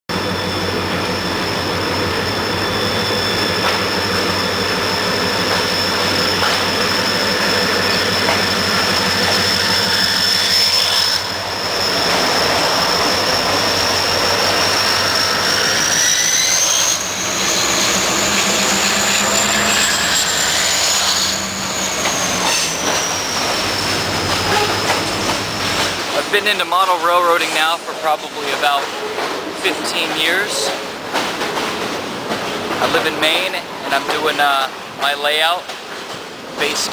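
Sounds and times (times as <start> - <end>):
high-pitched whine: 0.1 - 28.7
train running: 0.1 - 36.9.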